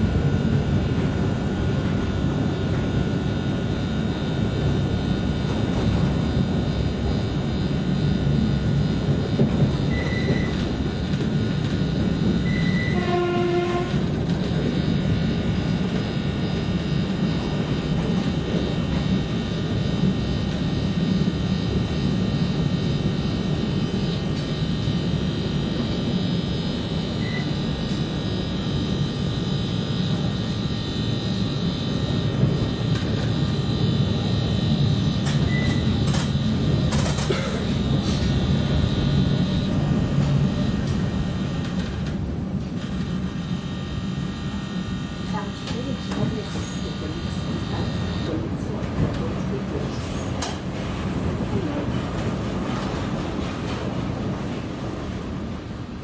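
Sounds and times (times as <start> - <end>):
train horn: 12.4 - 14.7
train wheels rumbling: 47.7 - 55.8.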